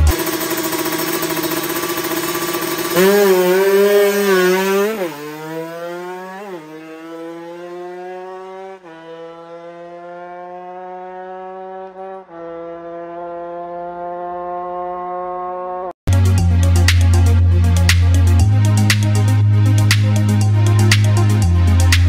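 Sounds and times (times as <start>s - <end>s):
two-stroke motorcycle revving: 0.0s - 15.9s.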